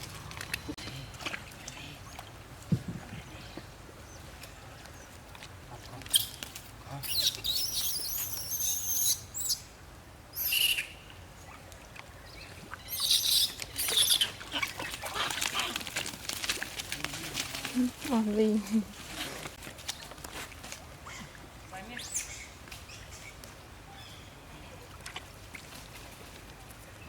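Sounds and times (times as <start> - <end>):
high-pitched squeaky calls: 7.0 - 9.6.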